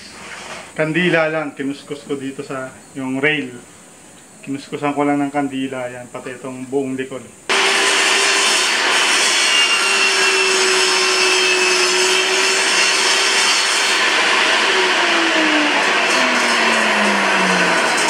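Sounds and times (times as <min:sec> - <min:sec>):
saw blade spinning down: 0:07.5 - 0:18.0
table saw whining: 0:07.5 - 0:18.0.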